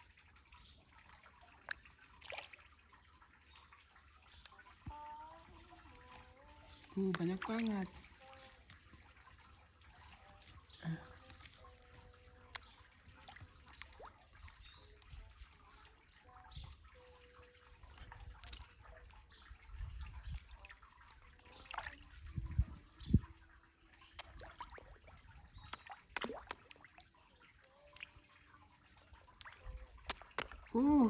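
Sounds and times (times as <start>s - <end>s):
faint trickling water: 0.0s - 31.0s
knocks or splashes: 25.7s - 27.0s.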